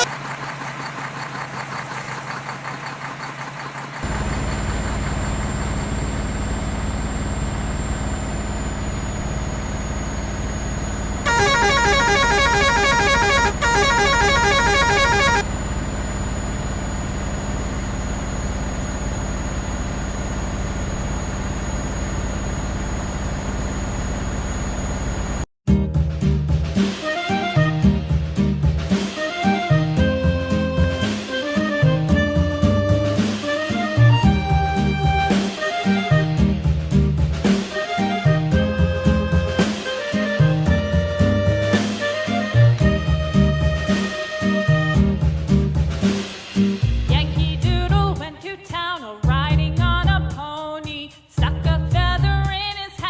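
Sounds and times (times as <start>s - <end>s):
toy engine hum with high whine: 0.0s - 25.5s
rapid horn-like beeping: 11.2s - 15.6s.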